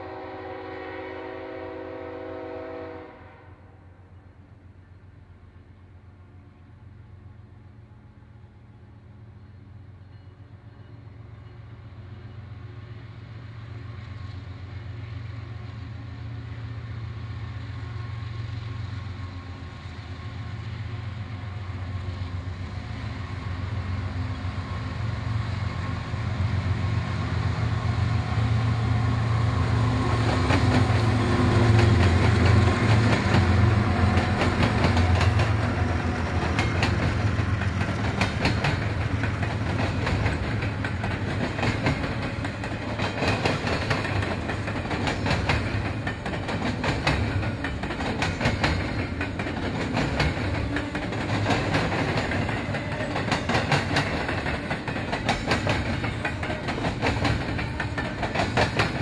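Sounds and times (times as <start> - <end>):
diesel locomotive engine: 0.0 - 59.0
train wheels clicking over track: 27.6 - 59.0.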